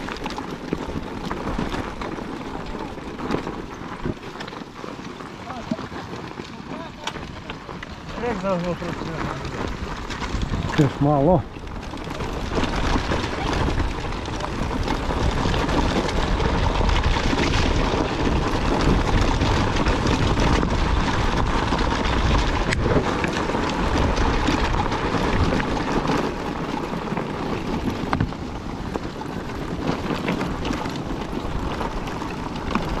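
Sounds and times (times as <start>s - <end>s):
motorcycle engine running: 0.0s - 33.0s
wind on microphone: 6.8s - 33.0s.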